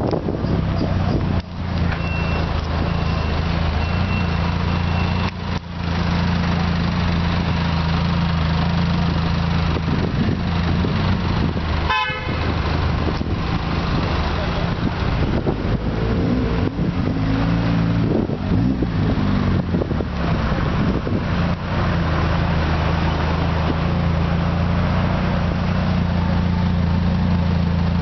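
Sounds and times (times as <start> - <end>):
car engine idling: 0.0 - 28.0
car horn toot: 11.9 - 12.5.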